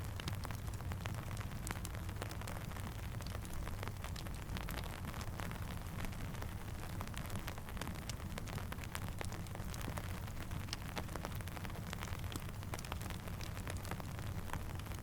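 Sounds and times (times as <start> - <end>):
faint campfire crackle: 0.0 - 15.0
raindrops ticking: 0.0 - 15.0.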